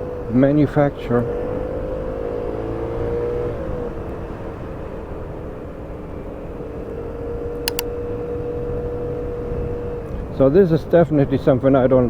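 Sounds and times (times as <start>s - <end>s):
short clicks: 7.7s - 7.9s.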